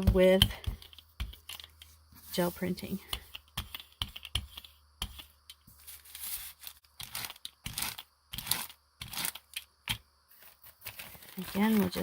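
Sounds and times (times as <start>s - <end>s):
paper rustling and crinkling: 5.7s - 8.0s, 10.3s - 12.0s.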